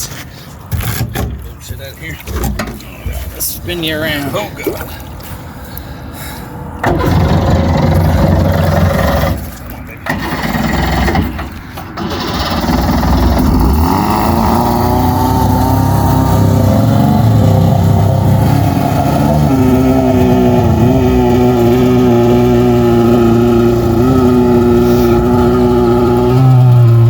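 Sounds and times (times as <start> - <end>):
boat engine running hard: 6.8 - 27.0.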